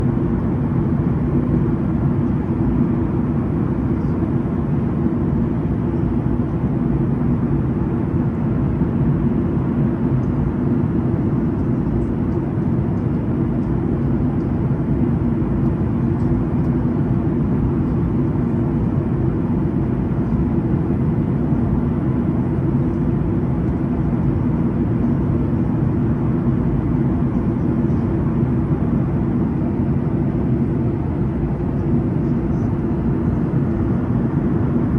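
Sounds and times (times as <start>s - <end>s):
airplane cabin engine noise: 0.0s - 34.9s.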